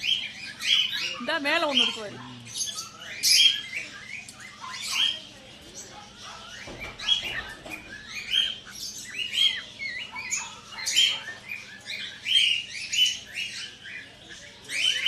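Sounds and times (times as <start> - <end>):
caged birds chirping: 0.0 - 15.0.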